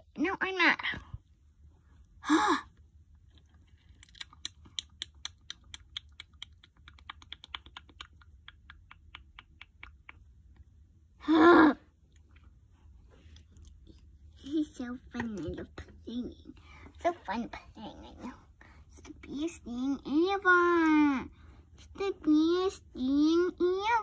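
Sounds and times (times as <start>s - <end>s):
child vocal sound: 11.2s - 11.9s.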